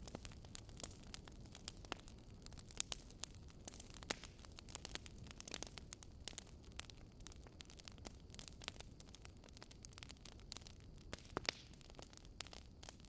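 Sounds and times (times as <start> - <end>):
fire crackling in fireplace: 0.0 - 13.0.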